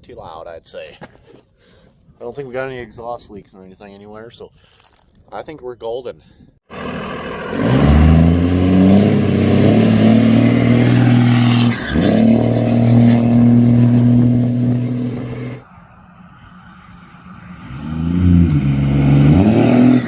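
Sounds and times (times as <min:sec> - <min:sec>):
diesel pickup engine revving: 0:06.7 - 0:15.6, 0:17.4 - 0:20.0.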